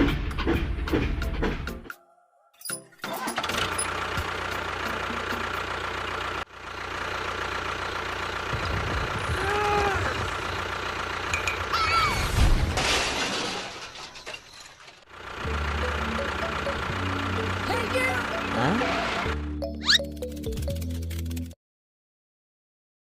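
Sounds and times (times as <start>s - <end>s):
small engine running: 3.0s - 11.8s, 15.1s - 21.6s
short sliding high-pitched sounds: 19.8s - 21.3s.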